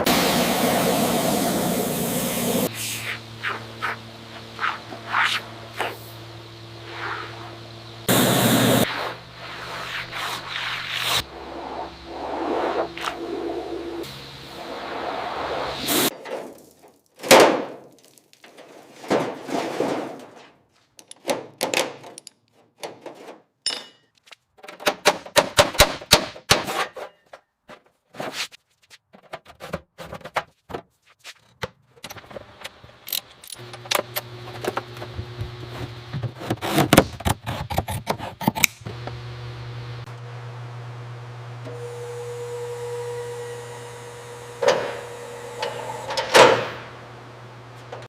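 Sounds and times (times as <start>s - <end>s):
steady machine hum: 0.0s - 9.6s
knocks clicks and clattering: 21.0s - 23.4s.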